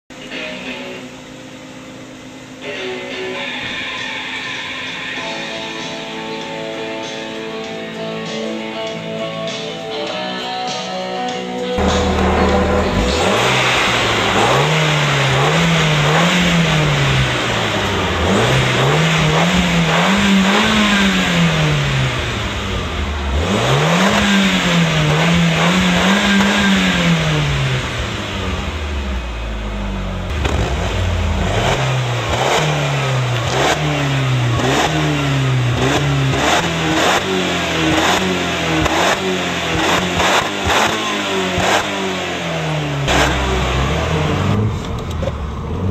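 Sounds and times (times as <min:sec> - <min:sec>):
car engine revving: 0:11.8 - 0:45.9.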